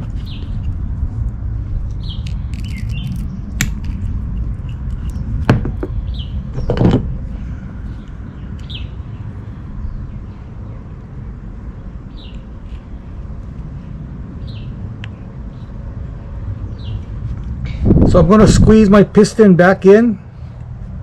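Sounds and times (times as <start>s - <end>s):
steady low rumble: 0.0s - 21.0s
bird chirping: 0.2s - 0.6s, 2.0s - 3.5s, 5.0s - 6.9s, 7.8s - 11.0s, 11.8s - 12.8s, 14.4s - 15.8s, 16.6s - 17.8s.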